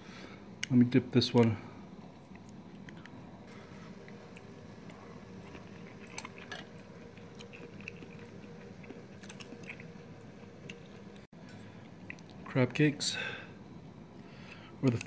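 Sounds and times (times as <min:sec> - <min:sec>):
person chewing: 0:03.8 - 0:12.5.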